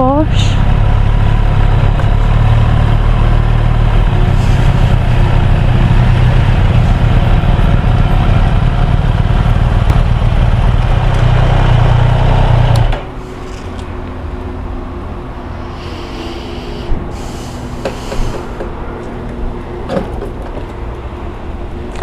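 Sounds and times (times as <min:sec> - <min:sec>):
motorcycle engine running: 0:00.0 - 0:20.7
wind noise: 0:00.3 - 0:11.0.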